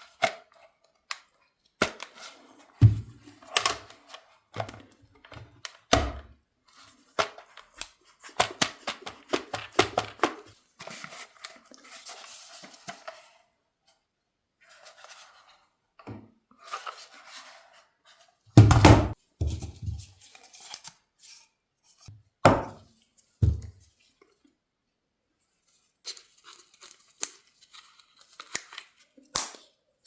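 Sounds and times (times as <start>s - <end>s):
soft packaging rustling: 10.2s - 15.9s, 19.4s - 22.1s, 25.3s - 30.0s.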